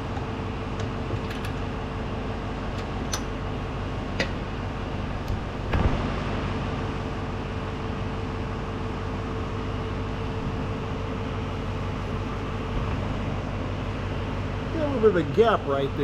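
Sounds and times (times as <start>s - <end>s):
steady whine: 0.0s - 16.0s
truck engine idling: 6.8s - 16.0s.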